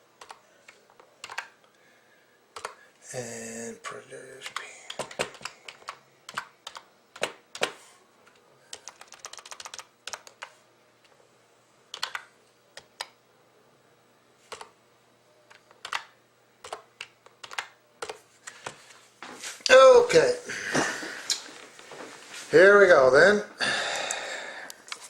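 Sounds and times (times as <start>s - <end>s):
typing on computer keyboard: 0.2s - 0.4s, 1.2s - 1.5s, 2.6s - 2.8s, 4.4s - 7.8s, 8.7s - 10.5s, 11.9s - 13.1s, 15.6s - 18.2s.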